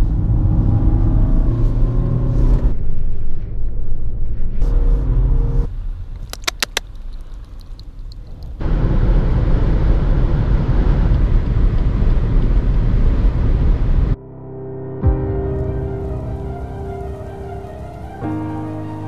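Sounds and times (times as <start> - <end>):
engine tyre and wind noise: 0.0 - 14.2
clicks: 6.2 - 8.6.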